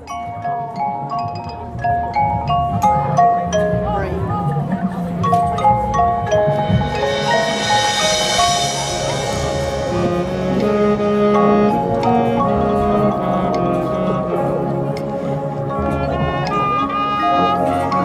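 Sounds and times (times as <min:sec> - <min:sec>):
marching band mallet percussion: 0:00.0 - 0:18.0
sustained bright chord: 0:05.9 - 0:13.6.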